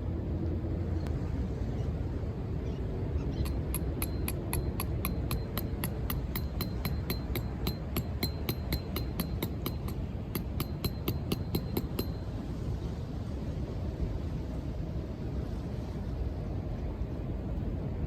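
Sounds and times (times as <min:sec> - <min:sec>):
wind: 0:00.0 - 0:18.0
rapid metallic tapping: 0:03.5 - 0:12.2.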